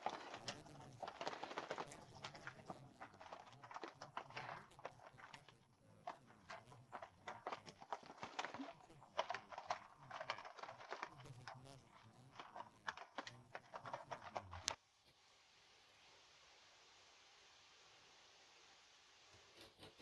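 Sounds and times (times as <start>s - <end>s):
irregular knocks and clatter: 0.0s - 14.8s
faint hiss: 10.9s - 20.0s.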